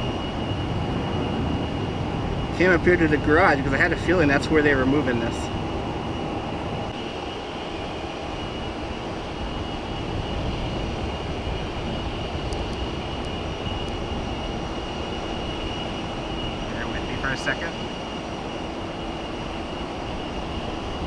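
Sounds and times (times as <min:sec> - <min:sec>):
jet engine rumble and whine: 0:00.0 - 0:21.0.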